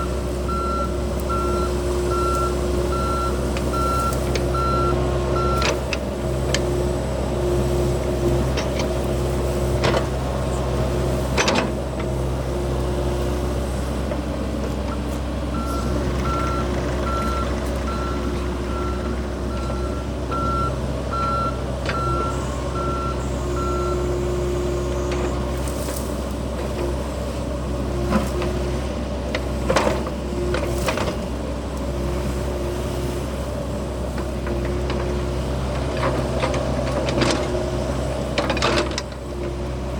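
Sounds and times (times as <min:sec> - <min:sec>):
diesel engine running: 0:00.0 - 0:39.9
travel alarm beeping: 0:00.5 - 0:05.7, 0:15.6 - 0:24.1.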